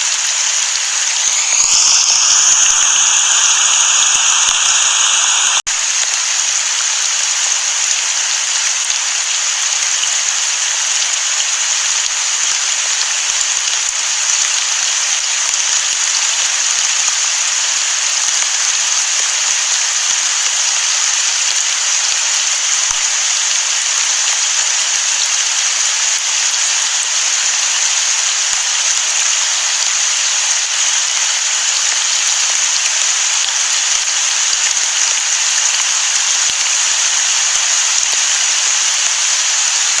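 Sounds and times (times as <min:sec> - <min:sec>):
steady rain hiss: 0:00.0 - 0:08.7, 0:21.4 - 0:40.0.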